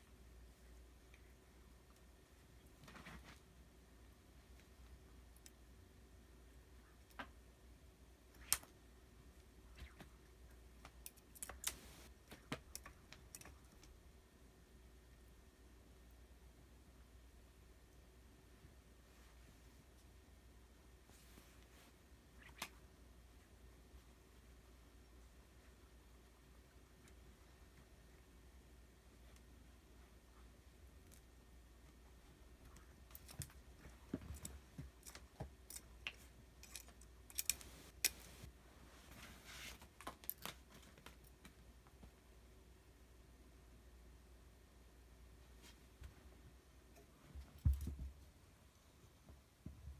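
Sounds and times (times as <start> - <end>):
light clicks and taps: 32.6 - 38.5.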